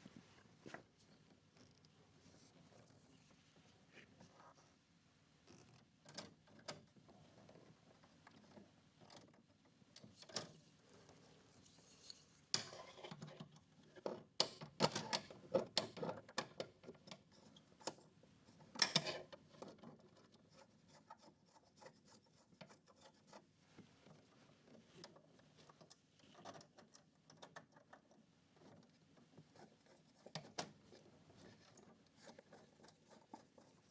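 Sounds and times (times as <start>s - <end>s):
tools and wire clicking and rubbing: 18.8s - 23.4s.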